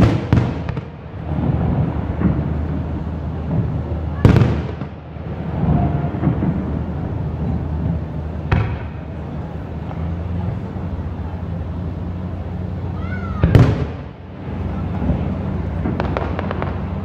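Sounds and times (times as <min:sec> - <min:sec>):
firework bang: 0:00.0 - 0:10.0, 0:13.4 - 0:14.2, 0:15.0 - 0:17.0
low rumble: 0:00.0 - 0:17.0.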